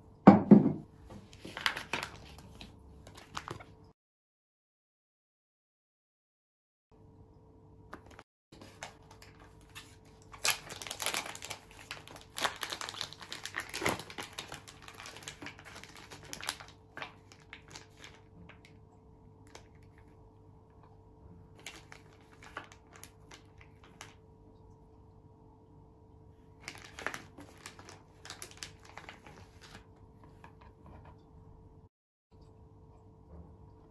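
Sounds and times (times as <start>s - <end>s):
plastic packaging crinkling: 1.2s - 3.8s, 8.0s - 18.8s, 21.6s - 24.2s, 26.6s - 30.0s.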